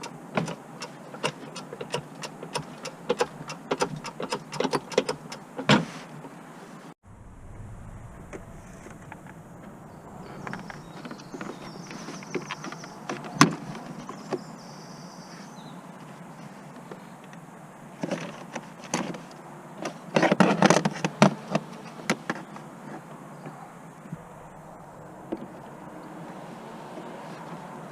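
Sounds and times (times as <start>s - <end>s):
metallic clicks and knocks: 0.0s - 5.4s
faint high whine: 7.0s - 12.2s, 24.0s - 27.5s.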